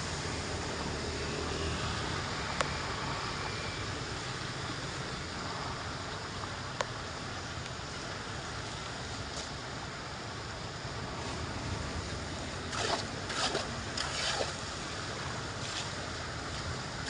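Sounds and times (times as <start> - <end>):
floodwater rushing into drain: 12.6 - 15.9.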